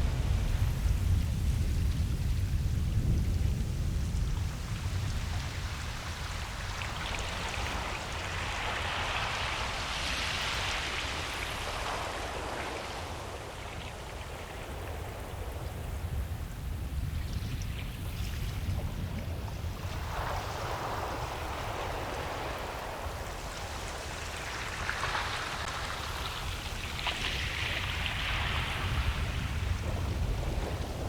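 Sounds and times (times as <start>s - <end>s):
low rumble of waves: 0.0s - 31.0s
wave washing in with a hiss: 4.8s - 31.0s.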